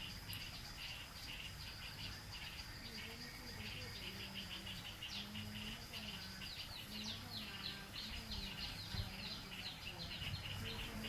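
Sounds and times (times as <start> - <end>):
birds chirping: 0.0 - 11.0
insect trill: 0.0 - 11.0.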